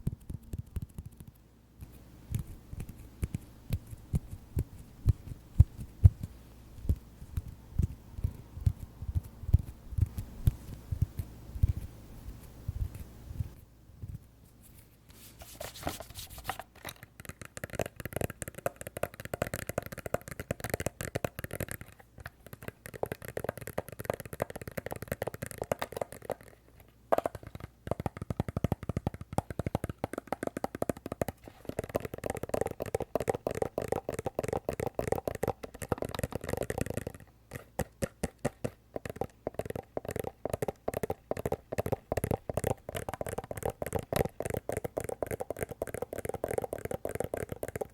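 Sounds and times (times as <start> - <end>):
fast tapping on glasses case: 16.8 - 47.9.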